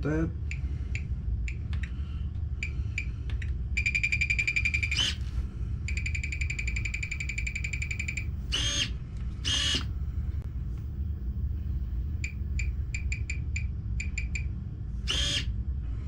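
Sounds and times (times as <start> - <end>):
steady low hum: 0.0 - 16.0
steering servo whirring: 4.8 - 5.4, 6.0 - 10.0, 12.2 - 15.5
fast ticking buzz: 5.9 - 9.9.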